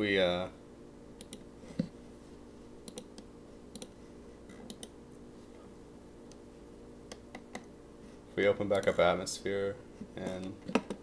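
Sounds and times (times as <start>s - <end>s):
faint steady hum: 0.0s - 11.0s
computer clicks: 1.2s - 1.4s, 2.8s - 3.9s, 4.6s - 5.0s.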